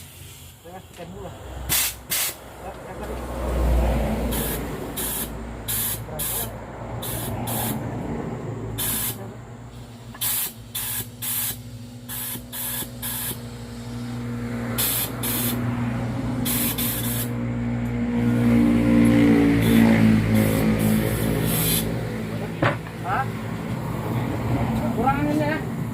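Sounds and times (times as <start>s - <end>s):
sharp hisses of air: 0.0s - 0.7s, 1.7s - 2.5s, 4.2s - 8.0s, 8.7s - 15.8s, 16.4s - 17.4s, 19.6s - 22.0s.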